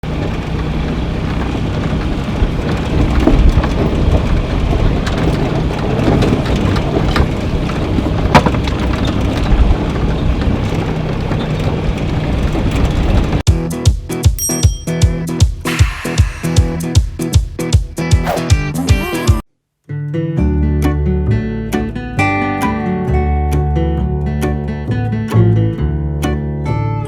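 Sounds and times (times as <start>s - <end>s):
vehicle engine running: 0.0s - 13.5s
wind buffeting microphone: 0.1s - 13.4s
knocks and rattles: 1.2s - 13.4s.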